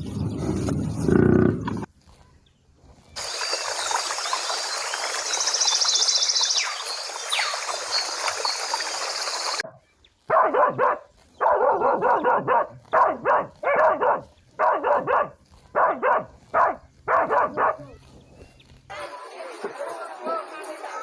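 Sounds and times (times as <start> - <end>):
dog barking: 10.3 - 17.9.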